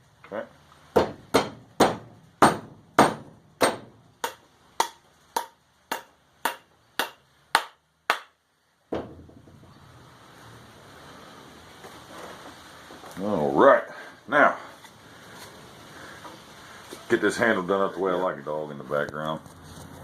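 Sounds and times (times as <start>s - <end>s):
hammer striking steel wedge: 1.0s - 9.2s.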